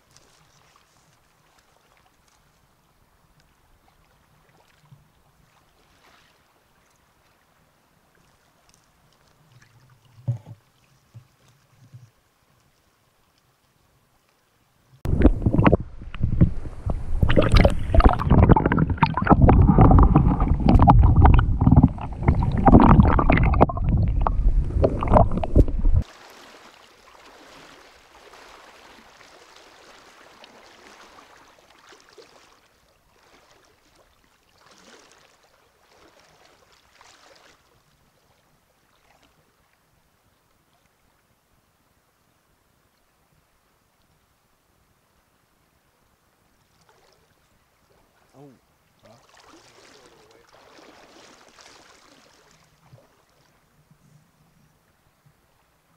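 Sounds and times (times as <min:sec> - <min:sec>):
flowing water rushing: 0:15.0 - 0:38.0, 0:48.0 - 0:53.8
fish splashing in water: 0:16.8 - 0:32.6, 0:49.2 - 0:53.5.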